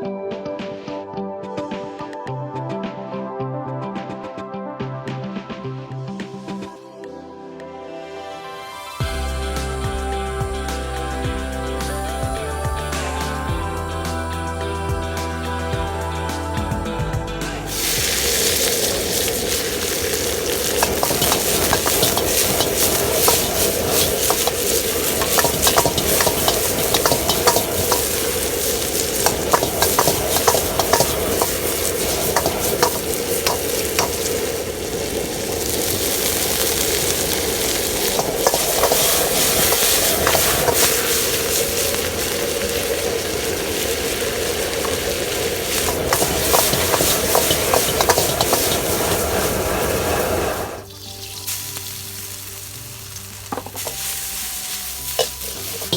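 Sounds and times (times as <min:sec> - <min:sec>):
food sizzling in a wok: 0:09.0 - 0:14.3, 0:17.6 - 0:55.9
utensil scraping a pan: 0:17.7 - 0:34.3, 0:37.2 - 0:42.0, 0:45.6 - 0:50.2.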